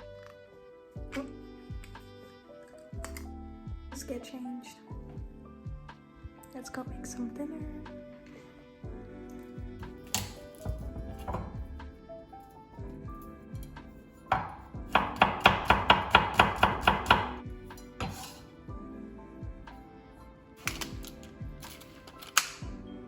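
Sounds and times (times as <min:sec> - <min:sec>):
soft background music: 0:00.0 - 0:23.0
knife chopping on cutting board: 0:14.3 - 0:17.4, 0:18.0 - 0:18.4.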